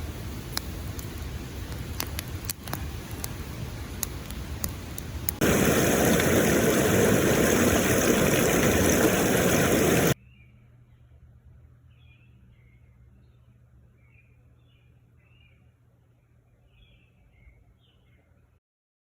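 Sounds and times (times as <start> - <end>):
loud steady rushing noise: 5.4 - 10.2.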